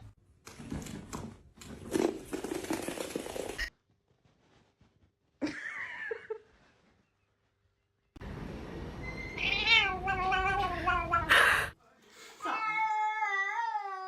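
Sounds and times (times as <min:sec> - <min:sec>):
cat meowing: 0:09.4 - 0:11.4, 0:12.4 - 0:14.0.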